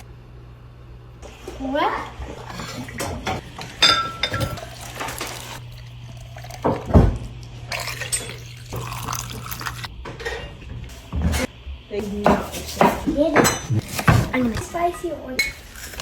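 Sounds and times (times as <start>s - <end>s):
water running at a sink: 1.8s - 9.9s
dishes knocking: 2.9s - 5.2s.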